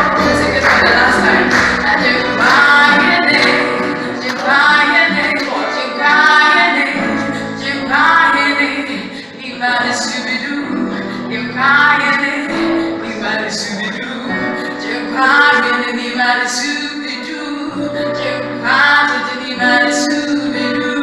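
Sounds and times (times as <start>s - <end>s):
band playing: 0.0s - 16.2s
voices singing: 0.0s - 21.0s.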